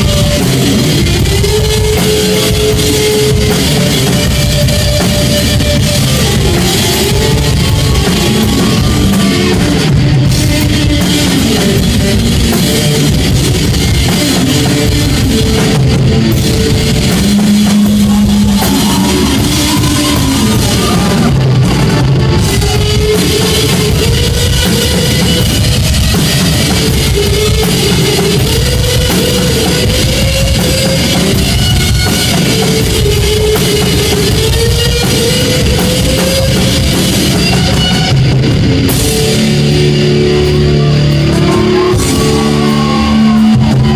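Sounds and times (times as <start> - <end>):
electric guitar bending notes: 0.0 - 43.9
live rock band playing: 0.0 - 43.9.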